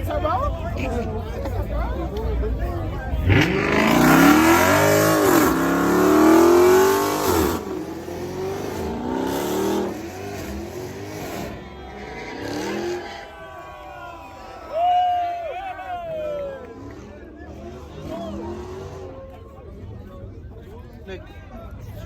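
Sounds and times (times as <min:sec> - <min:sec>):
car engine revving hard: 0:03.2 - 0:13.3.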